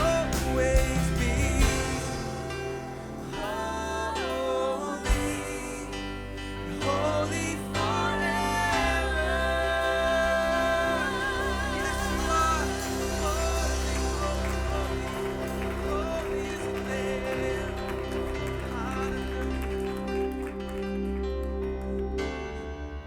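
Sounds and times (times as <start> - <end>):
drum hit: 0.0 - 3.5
person singing long notes: 0.0 - 20.0
worship band playing slowly: 0.0 - 23.0.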